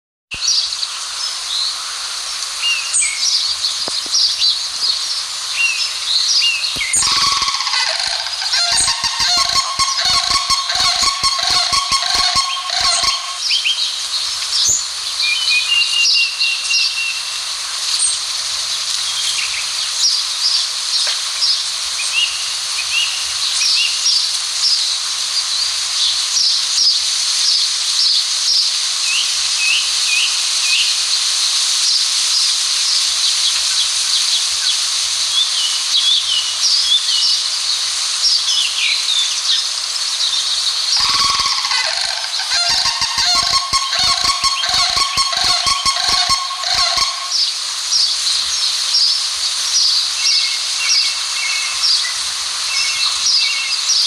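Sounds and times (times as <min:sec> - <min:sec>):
steady high hiss: 0:00.4 - 0:25.4, 0:26.3 - 0:54.0
small birds chirping: 0:06.6 - 0:13.6, 0:41.0 - 0:47.5
large bird honking: 0:06.9 - 0:13.4, 0:41.0 - 0:47.4.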